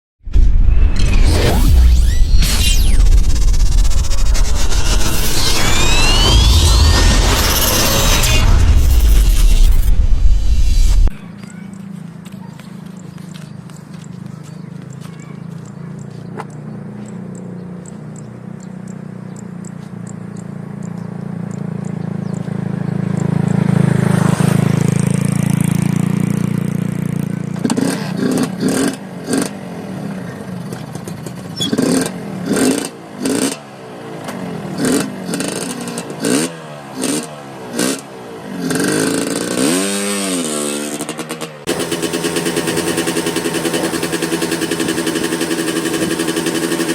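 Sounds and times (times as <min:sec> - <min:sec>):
two-stroke motorcycle engine revving: 0:15.6 - 0:46.9.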